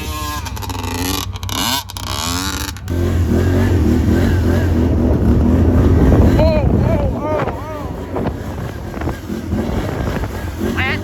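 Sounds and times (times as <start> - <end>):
dirt bike engine revving: 0.0 - 11.0
steady low rumble: 2.6 - 11.0.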